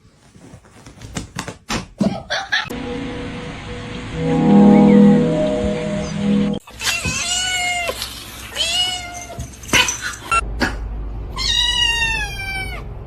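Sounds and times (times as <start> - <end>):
cat meowing: 11.4 - 12.8.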